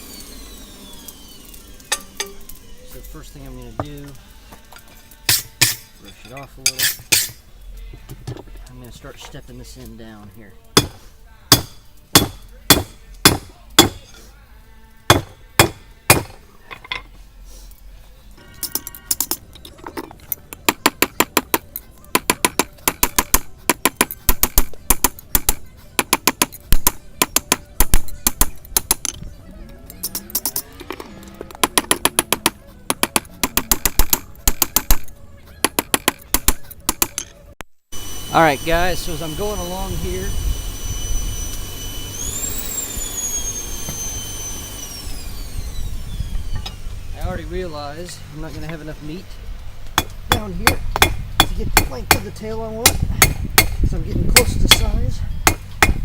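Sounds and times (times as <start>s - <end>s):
hammer striking steel on anvil: 5.3s - 7.4s, 10.8s - 14.2s, 15.1s - 17.0s, 50.0s - 53.8s, 54.4s - 56.0s.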